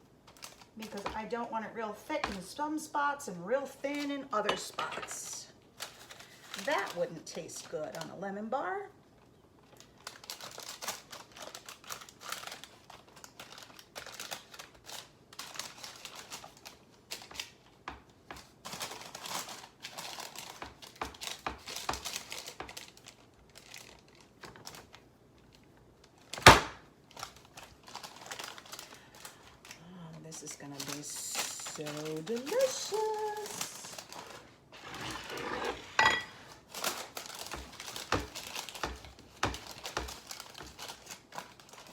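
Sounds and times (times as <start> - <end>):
parchment crinkling: 0.0 - 1.6, 3.6 - 8.3, 9.2 - 41.9
spoon scraping in baking pan: 34.8 - 36.4.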